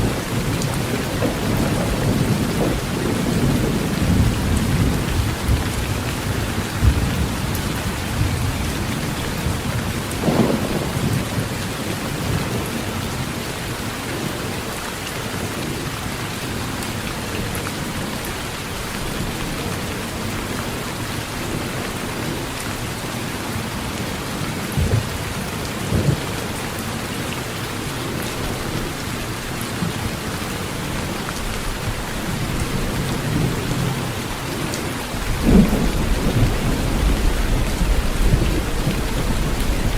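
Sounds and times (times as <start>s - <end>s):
low thunder rumbling: 0.0s - 13.4s, 24.3s - 26.6s, 29.8s - 39.9s
heavy rain on a tin roof: 0.0s - 39.9s.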